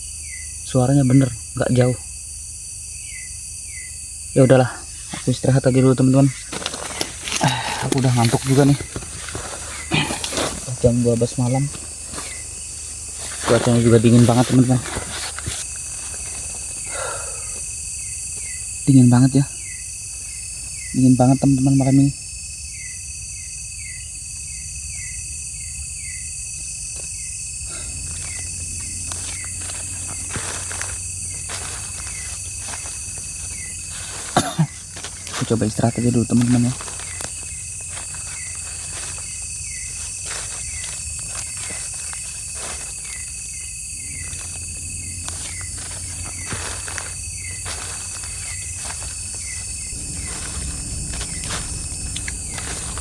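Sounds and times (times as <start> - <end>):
crickets buzzing: 0.0 - 53.0
insects shrilling: 0.0 - 53.0
soft rustles: 6.2 - 16.9, 27.7 - 53.0.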